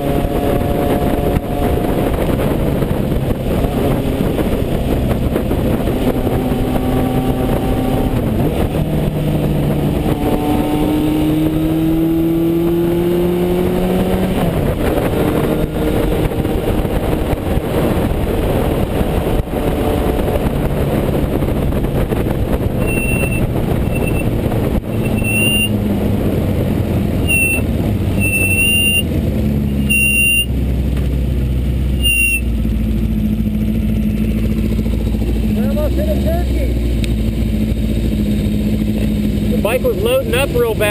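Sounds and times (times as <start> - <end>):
motorcycle engine revving: 0.0 - 40.9
wind noise: 0.0 - 40.9
brake squealing: 22.7 - 25.8, 27.2 - 30.6, 31.9 - 32.6.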